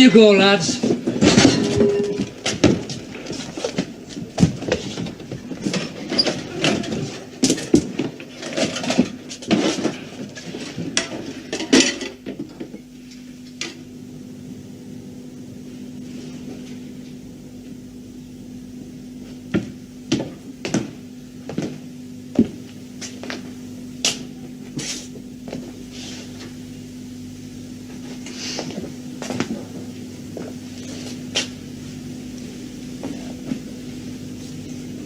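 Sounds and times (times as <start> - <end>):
steady low hum: 0.0 - 35.0
objects clattering and knocking: 0.8 - 12.7.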